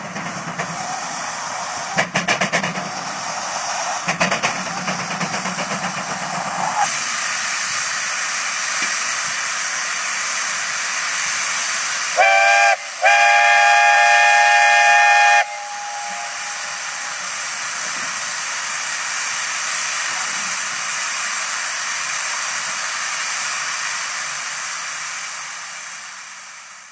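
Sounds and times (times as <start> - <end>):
steady steam hiss: 0.0 - 26.9
steam whistle blowing: 12.1 - 17.7.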